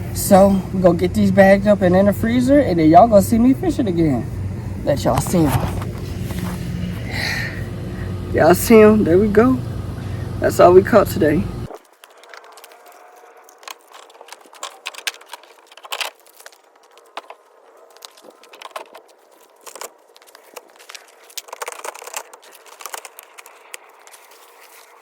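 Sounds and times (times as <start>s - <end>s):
plastic crinkling and clicking: 11.7s - 25.0s.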